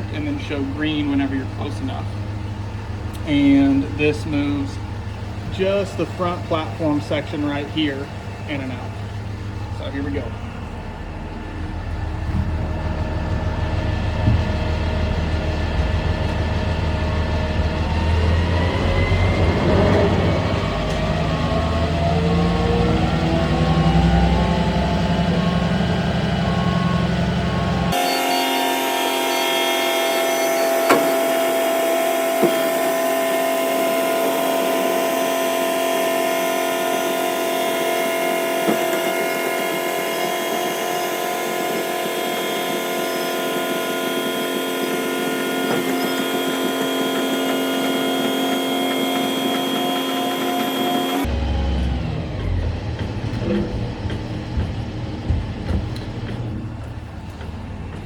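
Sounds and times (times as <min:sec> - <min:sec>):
truck engine and hydraulic pump drone: 0:00.0 - 0:58.0.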